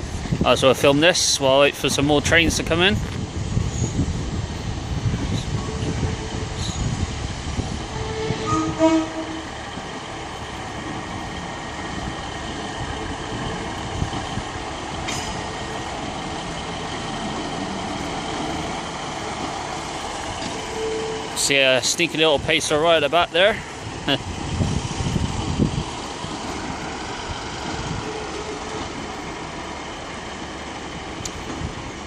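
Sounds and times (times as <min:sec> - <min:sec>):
diesel train running: 0:00.0 - 0:32.0
two-tone train horn: 0:05.6 - 0:06.8, 0:07.9 - 0:09.6, 0:20.7 - 0:21.3.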